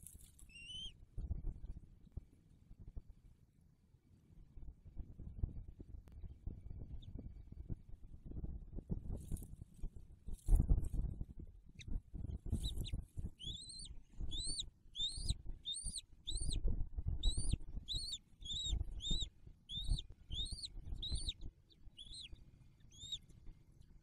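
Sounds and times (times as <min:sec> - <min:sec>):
bird chirping: 0:00.0 - 0:01.0, 0:11.8 - 0:24.0.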